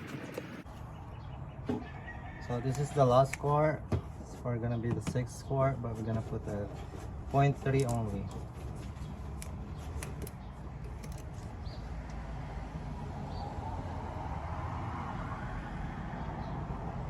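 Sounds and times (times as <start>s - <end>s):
motor oil pouring from bottle: 0.0s - 0.6s.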